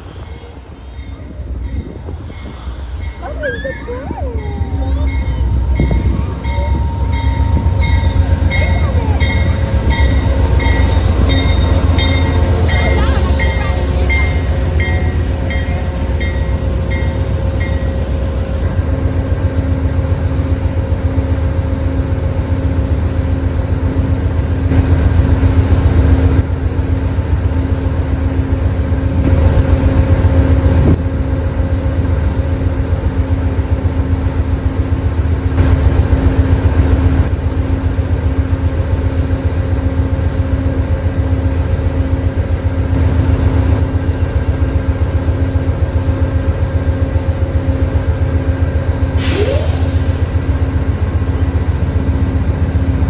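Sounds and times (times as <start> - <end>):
train passing with rumble: 0.0 - 53.0
bell ringing: 0.3 - 18.1.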